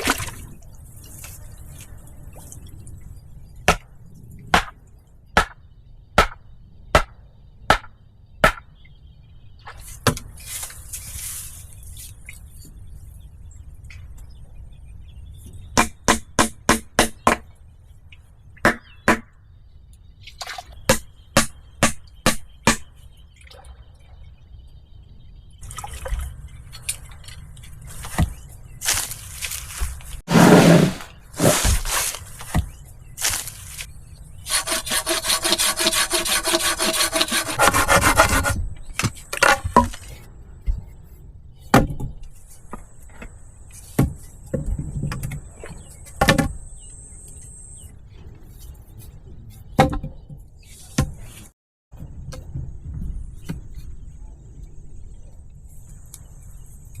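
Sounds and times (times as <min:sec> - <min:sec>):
rough wood scraping strokes: 0:09.8 - 0:12.0, 0:27.8 - 0:40.2.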